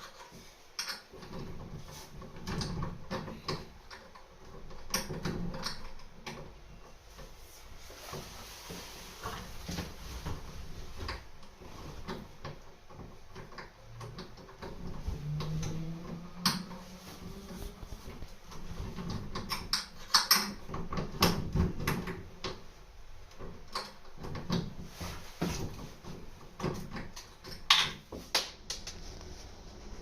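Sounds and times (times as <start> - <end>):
clicks and knocks of hardware: 0.0 - 1.8, 18.5 - 22.6.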